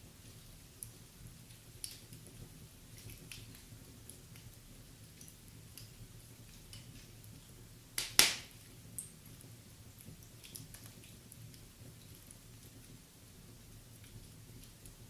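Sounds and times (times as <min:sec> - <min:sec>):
fireplace fire crackling: 0:00.0 - 0:15.0
loud sharp pop: 0:08.0 - 0:08.5.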